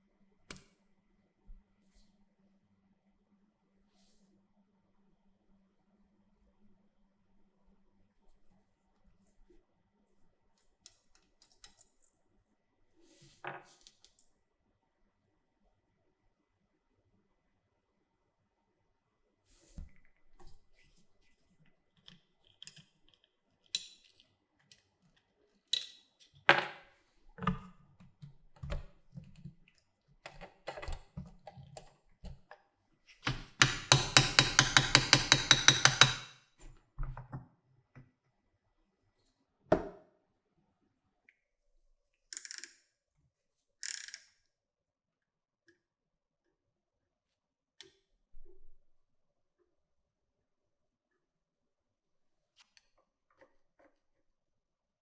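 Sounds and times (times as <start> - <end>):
tools clicking and knocking: 33.2 - 36.4, 42.4 - 42.8.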